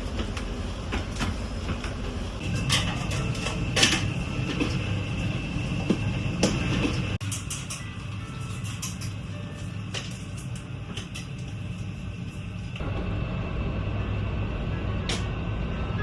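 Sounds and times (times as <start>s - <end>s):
dishes and utensils clinking: 6.4s - 11.6s.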